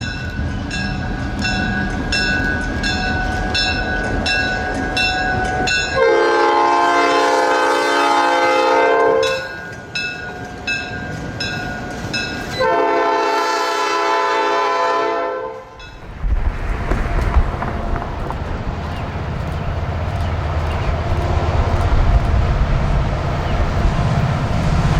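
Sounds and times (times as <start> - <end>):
crossing bell dinging: 0.0 - 7.2, 9.2 - 12.7
train rumble: 0.0 - 24.9
train air horn blasts: 4.5 - 9.6, 12.5 - 15.8.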